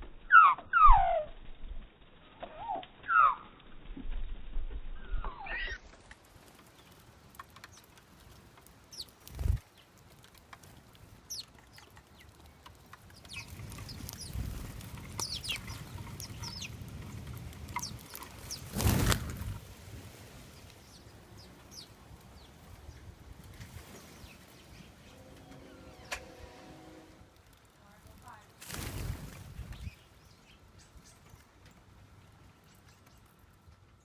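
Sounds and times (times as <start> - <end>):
birds chirping: 6.6 - 19.5, 20.4 - 27.2, 29.6 - 34.0
low rumble: 24.2 - 28.2.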